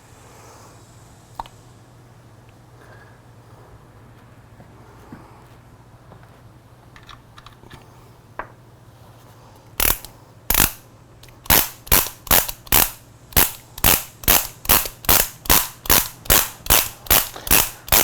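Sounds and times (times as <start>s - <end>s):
torque wrench clicking: 9.8s - 18.0s.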